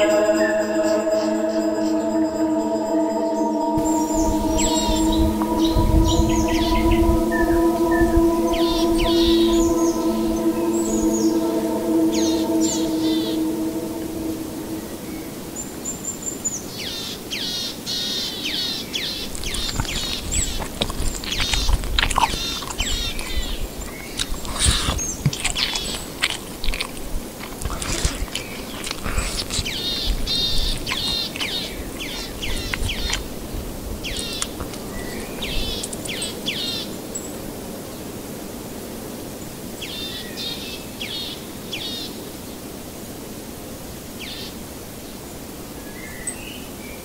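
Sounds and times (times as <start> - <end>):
birds chirping: 0.0 - 17.6, 18.4 - 26.8, 27.7 - 33.4
low steady rumble: 0.9 - 16.4.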